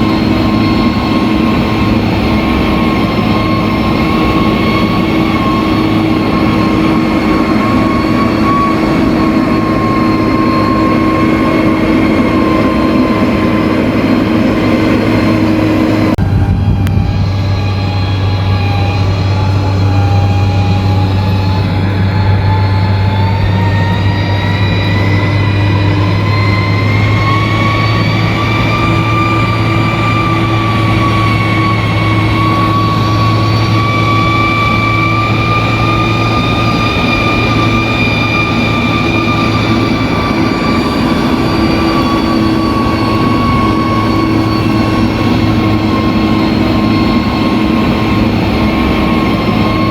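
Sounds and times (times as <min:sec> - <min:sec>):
bulldozer diesel engine: 0:00.0 - 0:49.9
machine whine: 0:00.0 - 0:49.9.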